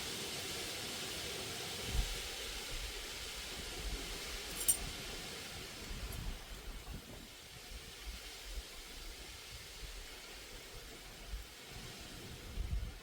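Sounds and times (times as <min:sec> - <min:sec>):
steady background hiss: 0:00.0 - 0:13.0
tools being handled: 0:04.5 - 0:04.8
small metallic clink: 0:04.5 - 0:04.9.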